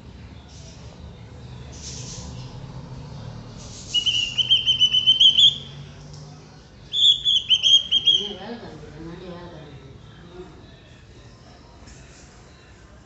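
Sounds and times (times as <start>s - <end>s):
bird whistling: 3.9s - 5.8s, 6.9s - 8.4s.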